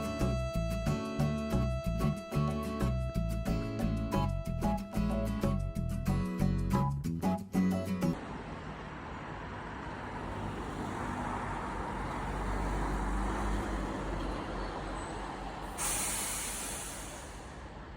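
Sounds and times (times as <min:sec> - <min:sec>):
road traffic rumble: 0:00.0 - 0:05.9, 0:08.1 - 0:17.9
sudden hiss: 0:15.8 - 0:17.6.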